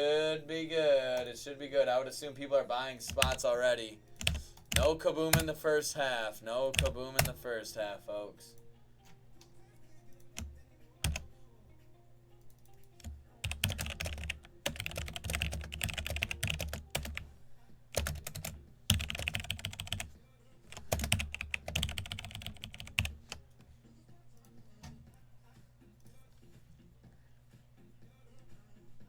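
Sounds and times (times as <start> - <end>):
typing on keyboard: 3.1 - 3.4, 4.1 - 5.6, 6.7 - 7.4, 10.2 - 11.3, 12.5 - 17.2, 17.9 - 20.1, 20.7 - 23.5.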